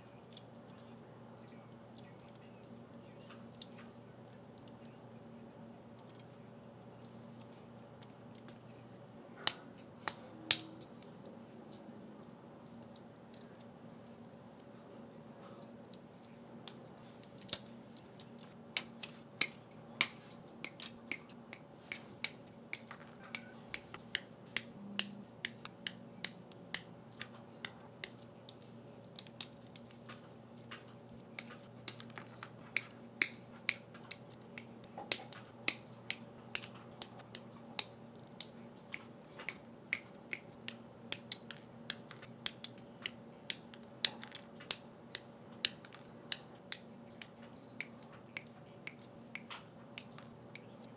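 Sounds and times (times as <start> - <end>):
faint steady hum: 0.0 - 50.9
plastic parts clicking and snapping: 9.4 - 50.9.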